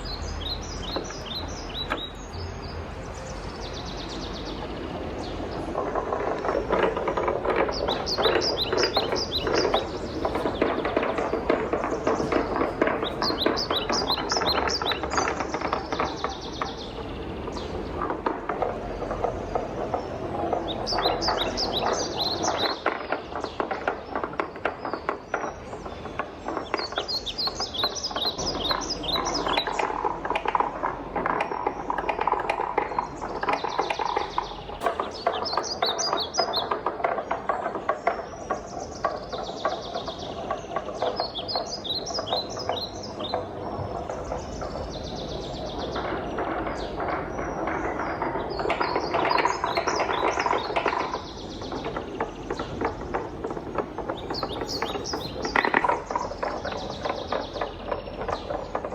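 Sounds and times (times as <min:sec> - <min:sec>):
wooden balls rattling down track: 0:03.4 - 0:58.9.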